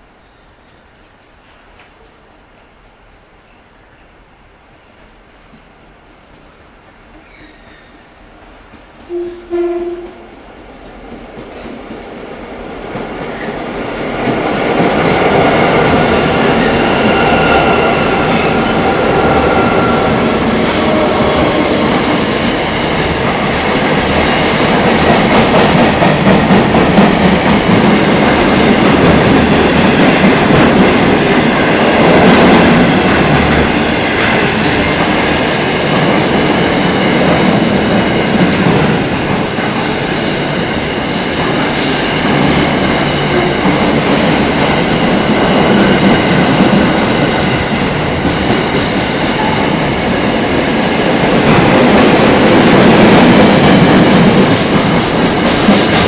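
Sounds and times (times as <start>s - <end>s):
train wheel clatter and rumble: 10.8s - 56.0s
locomotive whine: 15.5s - 22.9s.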